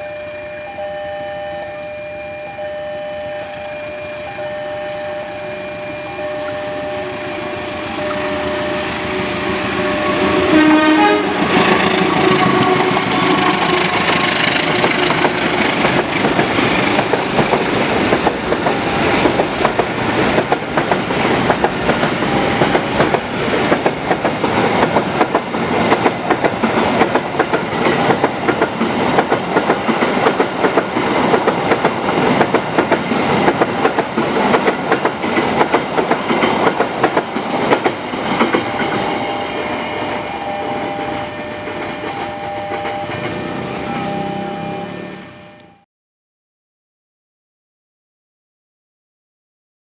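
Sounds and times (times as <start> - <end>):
train wheels clacking over rails: 6.7 - 44.6.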